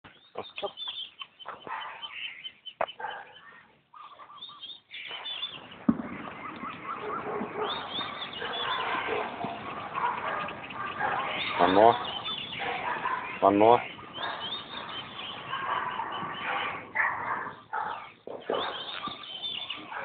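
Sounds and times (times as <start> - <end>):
birds chirping: 0.0 - 20.0
loud thump: 5.8 - 6.3.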